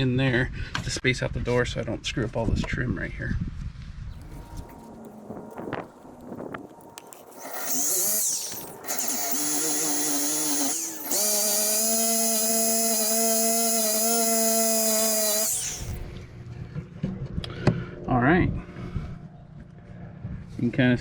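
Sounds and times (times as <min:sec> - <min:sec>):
drill motor whine: 0:07.1 - 0:16.1.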